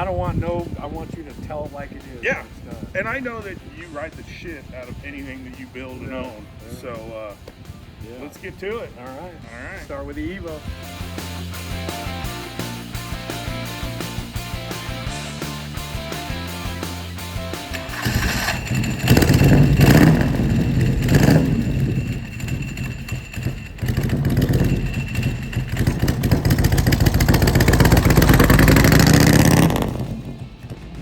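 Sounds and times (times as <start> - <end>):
motorcycle engine revving: 10.6 - 31.0.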